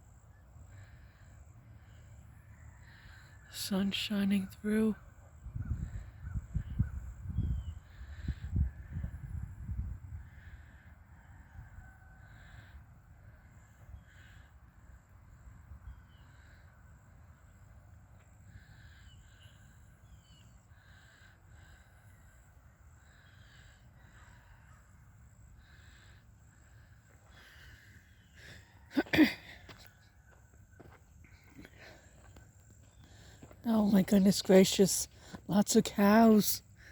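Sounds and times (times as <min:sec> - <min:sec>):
faint bird calls: 0:10.2 - 0:14.9, 0:15.8 - 0:17.6, 0:18.2 - 0:33.5.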